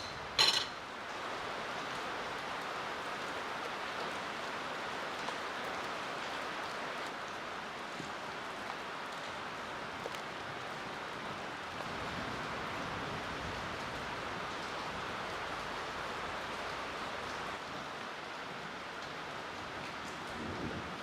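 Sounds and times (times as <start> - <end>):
faint raindrop ticks: 3.5 - 10.8, 13.4 - 21.0.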